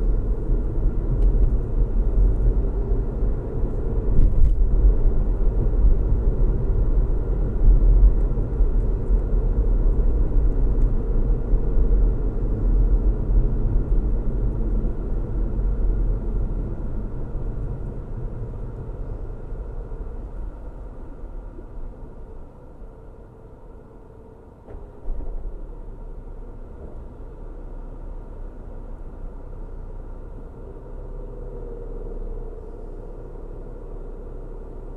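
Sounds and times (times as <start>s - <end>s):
car tyre and engine rumble: 0.0s - 34.9s.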